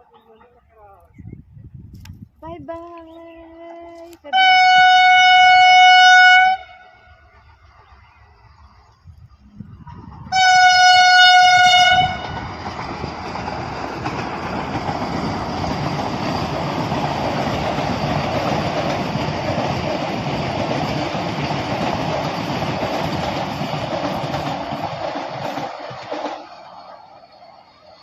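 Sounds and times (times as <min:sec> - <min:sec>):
train horn blast: 0:04.3 - 0:07.3, 0:10.3 - 0:12.4
train rushing past on rails: 0:04.3 - 0:28.0.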